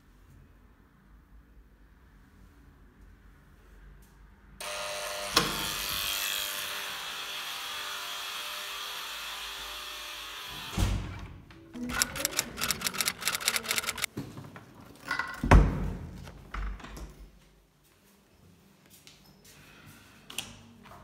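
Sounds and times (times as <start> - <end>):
electric buzzer: 4.6 - 6.7
sharp click: 11.9 - 14.1.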